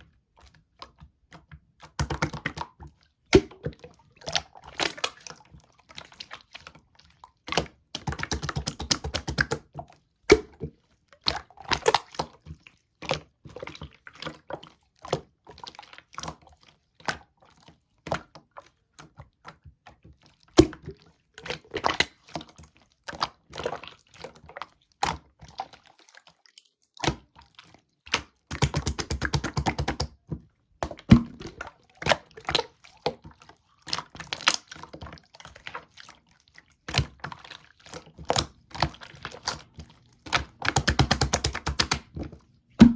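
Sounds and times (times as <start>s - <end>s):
slime squishing with popping bubbles: 7.4s - 12.7s, 27.0s - 42.9s.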